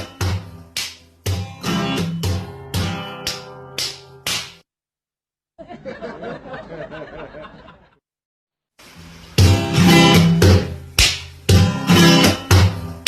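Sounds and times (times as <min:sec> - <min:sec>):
strummed acoustic guitar: 0:00.0 - 0:04.2, 0:09.4 - 0:13.0.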